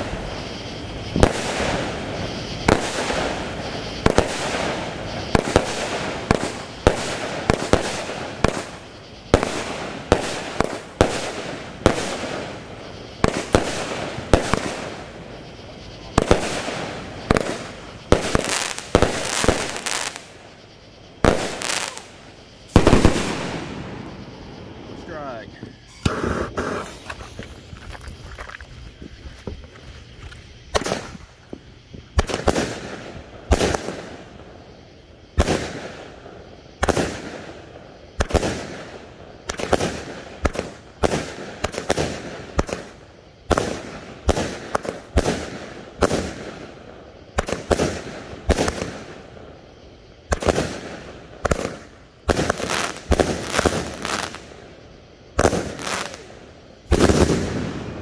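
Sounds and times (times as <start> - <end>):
firework bangs: 0.0 - 49.6, 50.3 - 58.0.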